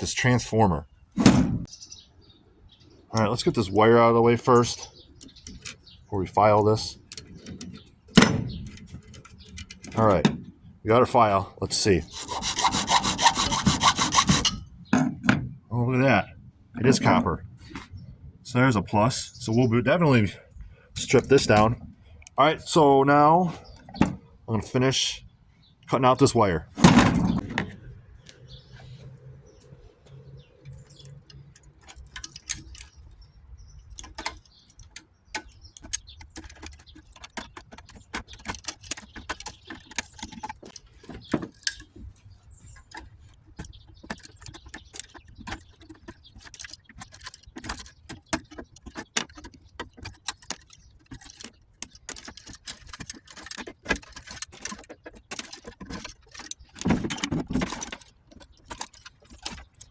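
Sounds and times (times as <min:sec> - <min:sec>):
hand tools snipping wire: 0:12.0 - 0:14.6, 0:34.0 - 0:41.9, 0:42.9 - 0:59.9.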